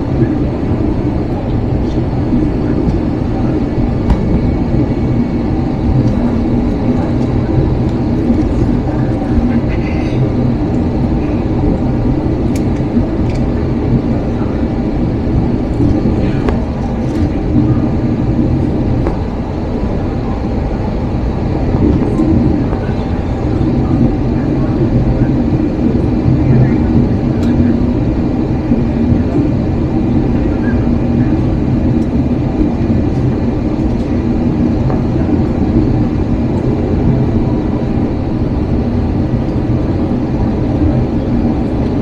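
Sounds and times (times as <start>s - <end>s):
airliner cabin rumble: 0.0s - 42.0s
constant hum: 0.0s - 42.0s.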